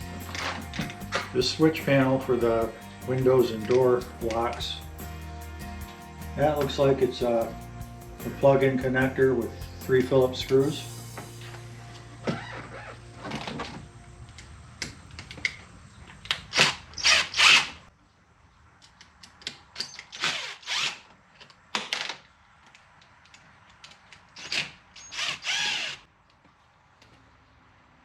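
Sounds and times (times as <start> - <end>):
power screwdriver spinning: 19.8 - 21.1, 24.4 - 26.0.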